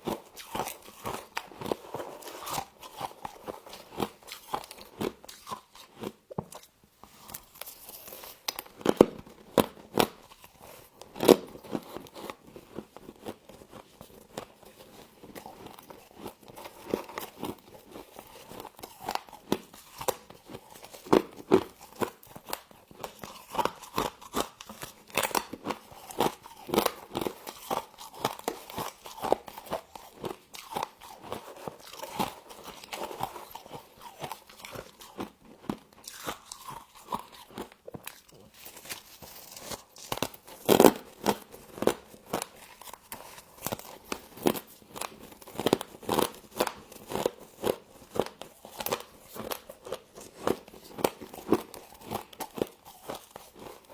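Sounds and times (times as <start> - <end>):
person chewing crunchy frost: 0.0 - 53.9.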